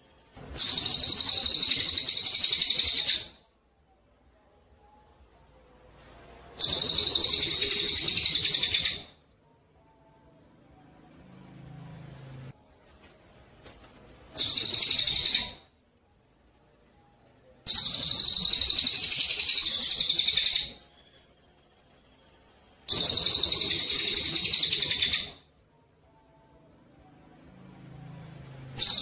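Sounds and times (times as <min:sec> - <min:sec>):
songbird buzzy trills: 0:00.0 - 0:29.0.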